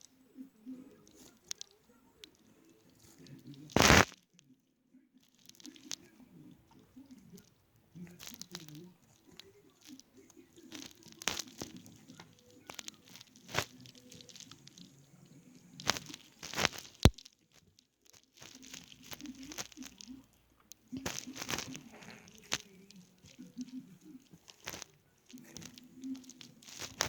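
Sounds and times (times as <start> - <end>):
plastic packaging crinkling: 1.0 - 4.2, 5.3 - 6.1, 6.7 - 27.0.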